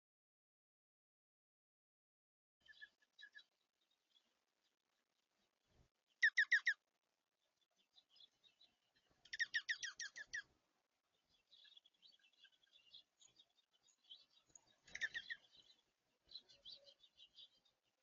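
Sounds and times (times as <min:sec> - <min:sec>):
faint high bird twittering: 0:06.2 - 0:06.8, 0:07.8 - 0:10.5, 0:11.1 - 0:17.8.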